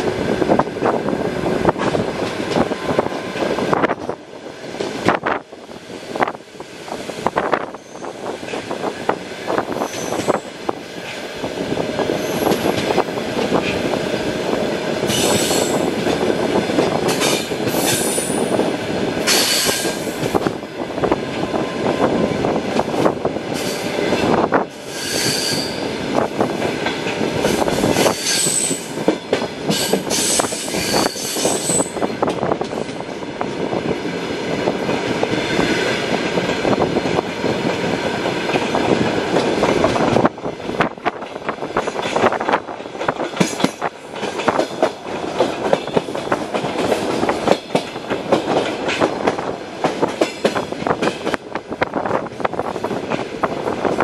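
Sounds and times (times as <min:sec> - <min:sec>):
train wheels rumbling on track: 0:00.0 - 0:54.0
high-pitched wheel squeals: 0:09.8 - 0:10.4, 0:24.9 - 0:25.9, 0:28.0 - 0:28.9, 0:29.8 - 0:32.0.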